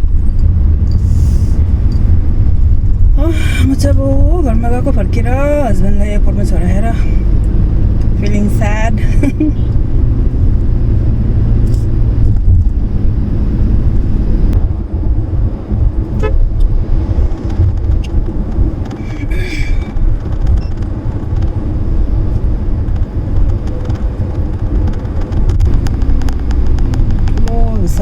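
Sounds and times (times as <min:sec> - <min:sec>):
engine and road rumble: 0:00.0 - 0:28.0
horn honk: 0:16.1 - 0:16.5.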